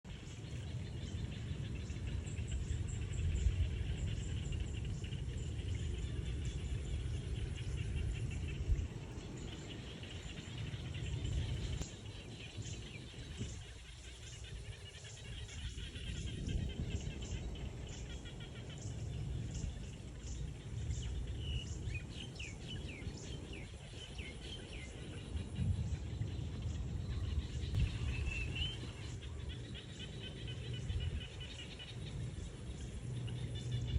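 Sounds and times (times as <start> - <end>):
low rumble: 15.3 - 33.9.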